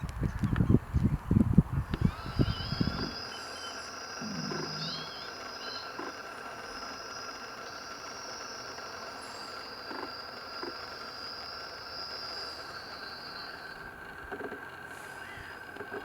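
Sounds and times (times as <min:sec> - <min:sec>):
low bird call: 0:02.0 - 0:06.9
thin high bird chirps: 0:02.4 - 0:06.0.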